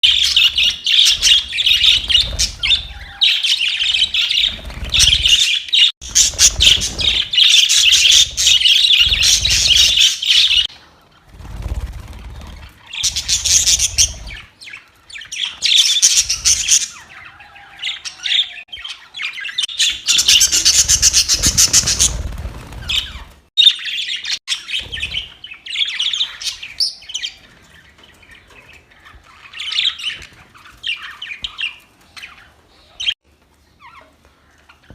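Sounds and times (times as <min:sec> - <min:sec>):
budgerigars chattering and squawking: 0:00.0 - 0:10.8, 0:12.2 - 0:33.2.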